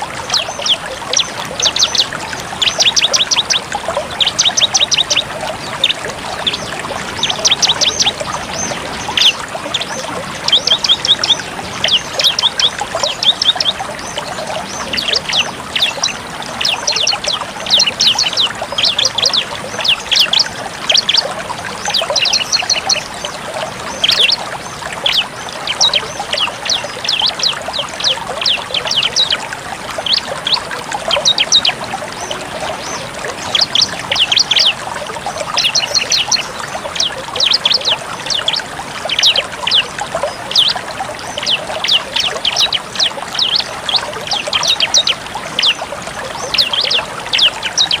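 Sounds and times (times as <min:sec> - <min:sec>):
bird singing rapid sharp notes: 0:00.0 - 0:24.4, 0:35.5 - 0:45.8
trickling water: 0:00.0 - 0:48.0.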